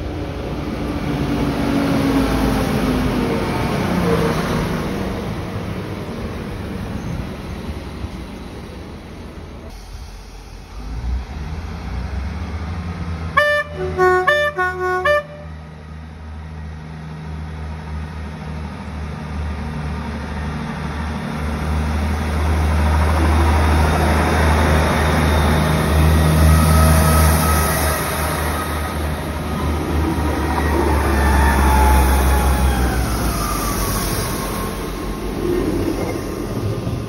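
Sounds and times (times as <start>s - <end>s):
diesel train engines throbbing: 0.0s - 37.0s
two-tone train horn blasts: 13.4s - 15.7s.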